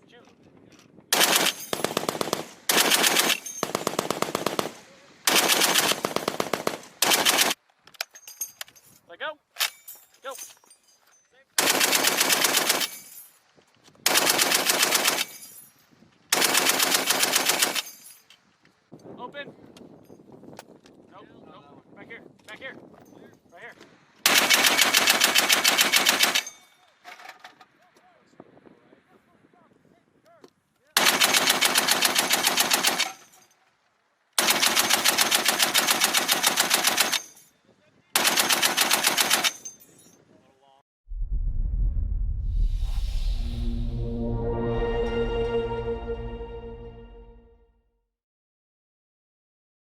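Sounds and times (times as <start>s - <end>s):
heavy machine gun bursts: 1.2s - 7.6s, 31.0s - 33.2s, 34.4s - 37.2s, 38.2s - 39.6s.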